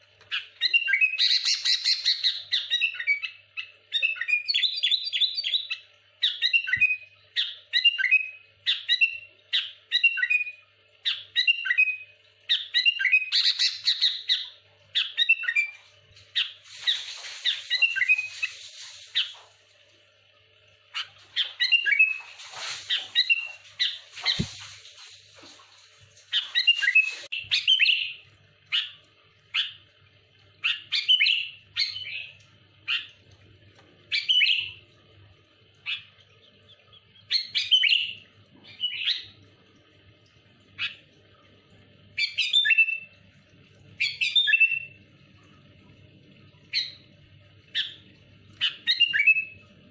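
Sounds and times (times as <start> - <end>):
bulbul singing: 0.3 - 19.5, 20.8 - 24.7, 26.3 - 29.9, 30.6 - 33.2, 34.1 - 35.0, 35.8 - 39.5, 42.1 - 43.2, 43.9 - 45.1, 46.5 - 49.7.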